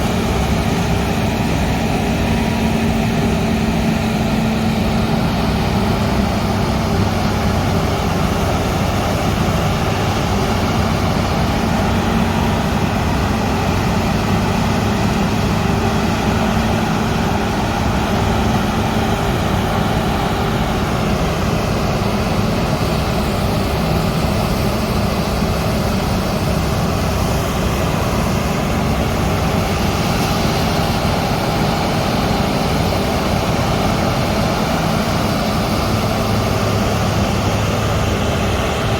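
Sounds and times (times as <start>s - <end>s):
harvester engine and machinery drone: 0.0s - 38.9s.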